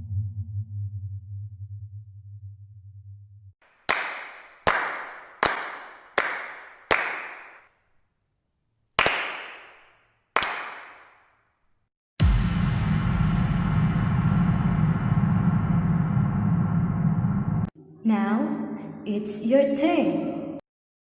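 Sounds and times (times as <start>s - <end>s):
low hum: 0.0s - 3.5s, 12.2s - 19.2s
sharp cracks: 3.7s - 7.7s, 9.0s - 11.4s.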